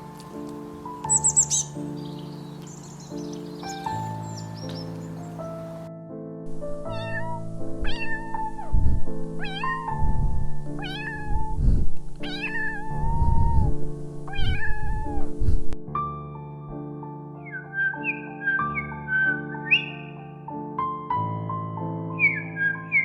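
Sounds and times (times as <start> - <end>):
background music: 0.0 - 23.0
cat meowing: 6.9 - 10.1, 10.8 - 11.6, 12.2 - 13.7, 14.3 - 15.4.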